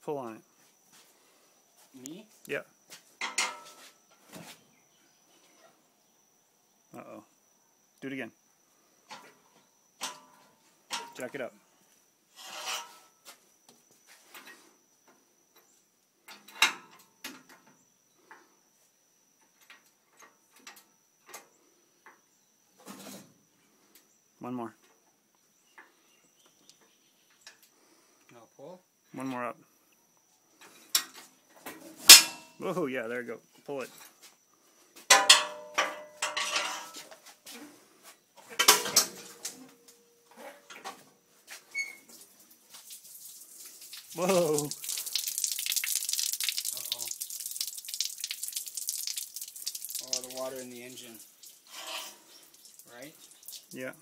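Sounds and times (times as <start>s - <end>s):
metal clanking and rattling: 35.1s - 37.1s, 38.5s - 39.5s.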